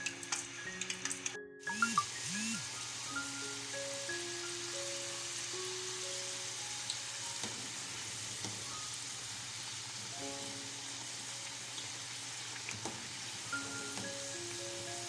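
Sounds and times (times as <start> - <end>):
potato slices sizzling in oil: 0.0 - 15.0
soft background music with mallets: 13.5 - 15.0.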